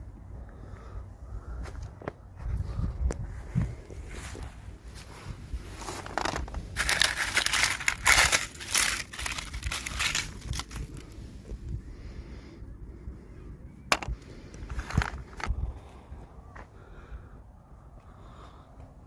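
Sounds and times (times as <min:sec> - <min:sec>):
plastic packaging crinkling: 0:05.9 - 0:11.1.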